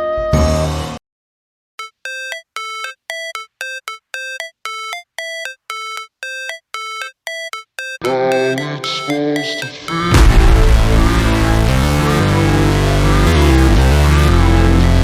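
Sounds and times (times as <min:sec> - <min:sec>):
bell-like electronic synth beeps: 0:01.8 - 0:12.2.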